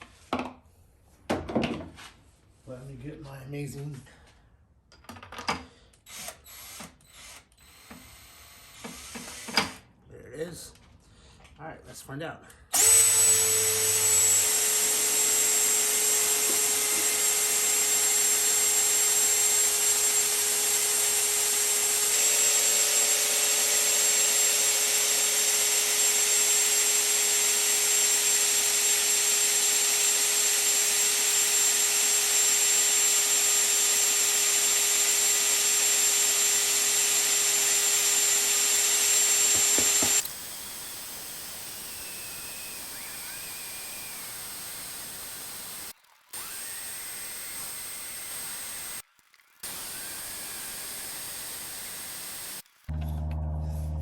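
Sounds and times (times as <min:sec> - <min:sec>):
electric drill whine: 0:06.1 - 0:09.8, 0:12.7 - 0:49.0, 0:49.6 - 0:52.6.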